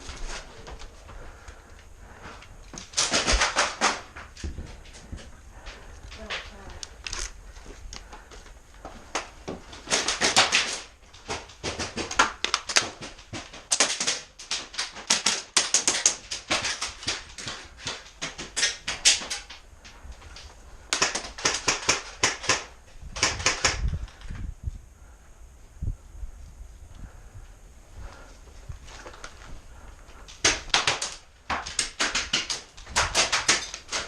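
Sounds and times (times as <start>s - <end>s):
airsoft guns firing in bursts: 2.9s - 4.2s, 9.8s - 19.5s, 20.9s - 23.9s, 30.3s - 34.0s.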